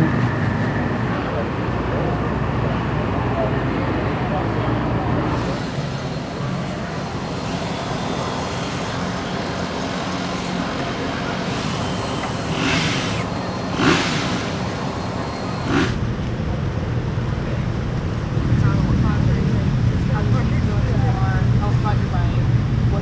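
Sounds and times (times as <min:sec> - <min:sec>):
short hissing bursts: 0:11.4 - 0:16.0.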